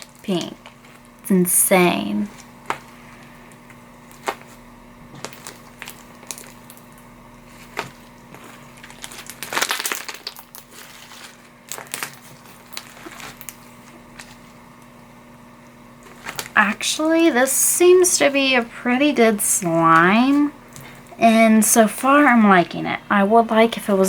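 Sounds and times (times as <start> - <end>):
foam beads crackling and popping: 0.0 - 24.0
hands squishing slime: 2.3 - 14.6.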